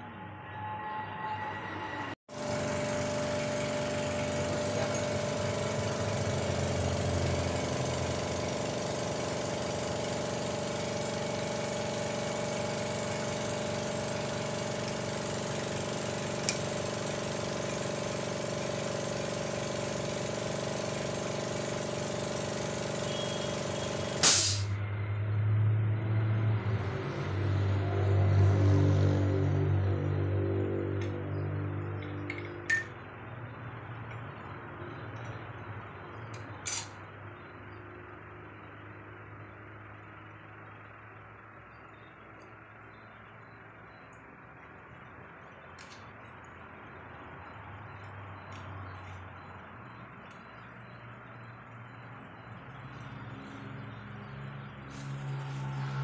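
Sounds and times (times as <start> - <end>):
machine humming: 0.0 - 24.3.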